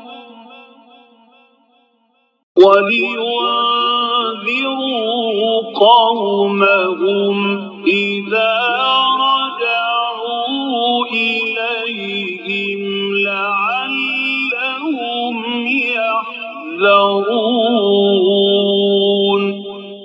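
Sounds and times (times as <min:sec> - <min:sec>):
man chanting: 0:00.0 - 0:00.8, 0:02.6 - 0:20.0.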